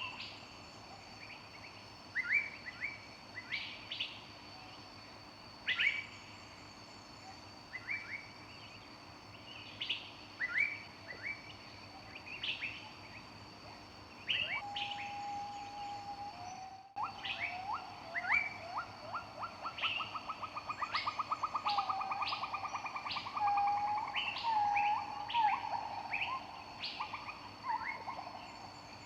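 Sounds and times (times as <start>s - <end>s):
low level bird whistle: 14.3s - 18.9s.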